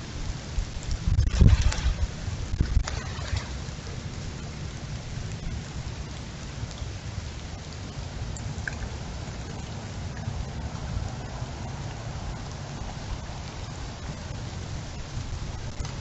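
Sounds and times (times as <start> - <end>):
low rumble: 0.0 - 6.7
heavy rain: 0.0 - 16.0.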